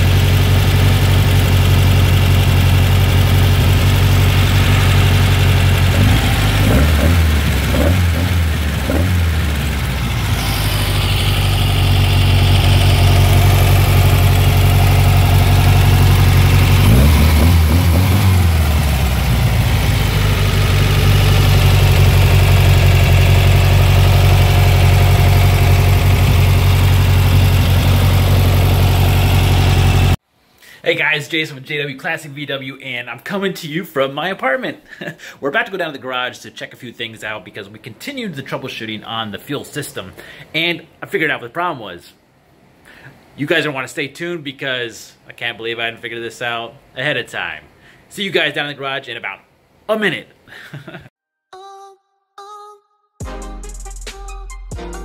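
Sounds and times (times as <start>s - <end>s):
car engine idling: 0.0s - 30.2s.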